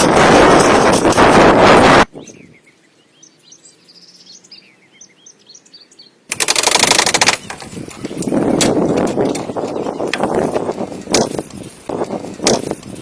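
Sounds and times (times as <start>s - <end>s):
loud rapid rattling: 0.0s - 2.0s, 6.3s - 13.0s
birds chirping: 2.1s - 13.0s.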